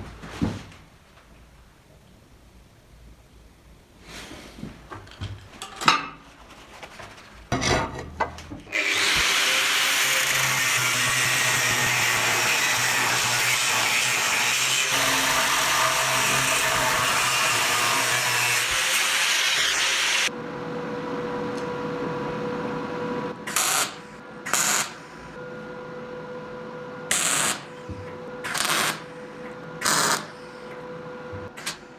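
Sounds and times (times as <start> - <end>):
power tool running with hissy noise: 8.8 - 12.7.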